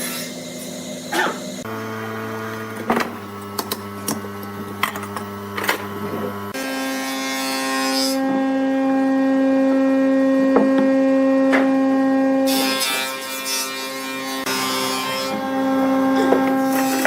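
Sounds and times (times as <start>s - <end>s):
wood lathe humming: 0.0s - 17.0s
tool cutting spinning wood: 14.1s - 17.0s.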